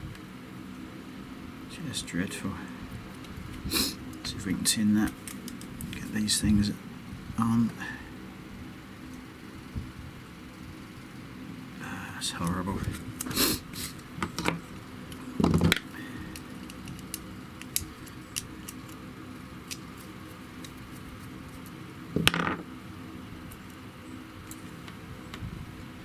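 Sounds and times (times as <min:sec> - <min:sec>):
wire and plug parts clattering: 0:14.0 - 0:19.0.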